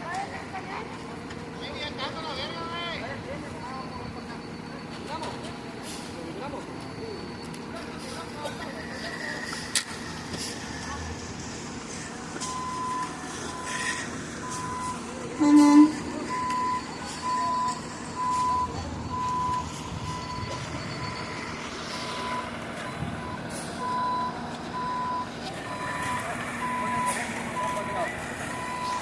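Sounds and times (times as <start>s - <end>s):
truck reversing alarm beeping: 0.2s - 29.0s
engine running: 3.0s - 29.0s
horn blast: 15.4s - 16.2s.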